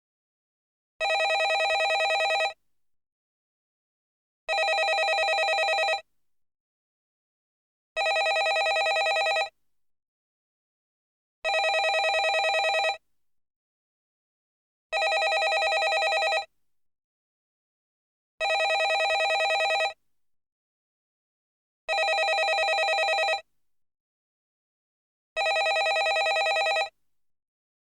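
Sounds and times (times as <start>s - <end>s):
telephone ringing with warble: 1.0s - 2.6s, 4.5s - 6.0s, 8.0s - 9.5s, 11.5s - 13.0s, 15.0s - 16.5s, 18.4s - 20.0s, 21.9s - 23.4s, 25.4s - 26.9s.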